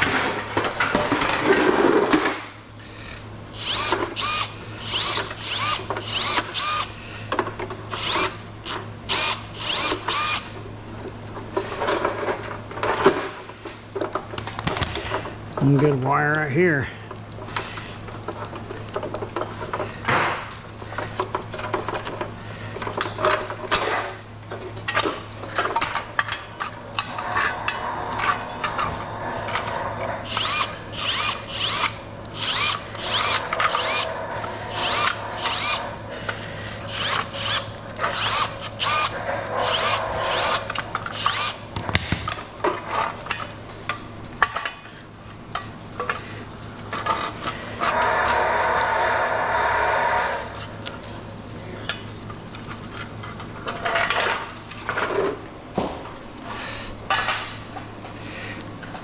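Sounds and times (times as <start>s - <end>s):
steady low hum: 0.0s - 59.0s
power tool whirring: 3.5s - 7.0s, 7.9s - 8.4s, 9.1s - 10.6s, 27.1s - 36.1s, 36.8s - 42.1s, 47.8s - 50.7s.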